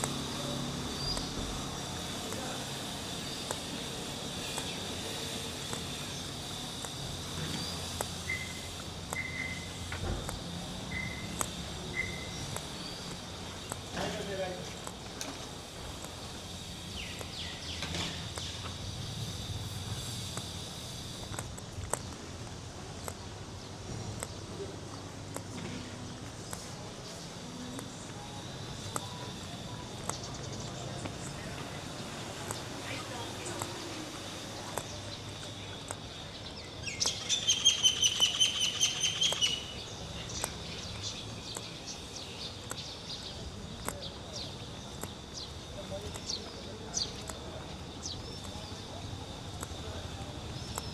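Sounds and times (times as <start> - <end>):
bird chattering call: 0.0 - 9.9, 10.9 - 14.2, 29.0 - 50.9
faint street background: 0.0 - 50.9
high insect drone: 0.0 - 50.9
scattered ticks: 0.0 - 50.9.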